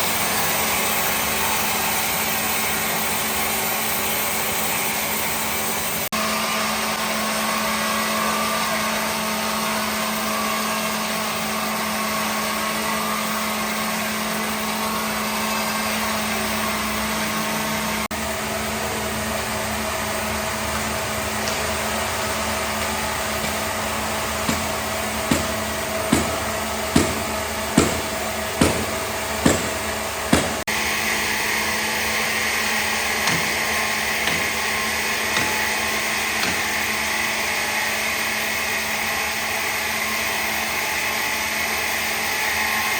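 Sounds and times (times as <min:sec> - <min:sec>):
power tool whining: 0:00.0 - 0:42.9
sharp knocks: 0:21.4 - 0:30.7, 0:33.2 - 0:34.6, 0:35.3 - 0:35.8, 0:36.4 - 0:36.9.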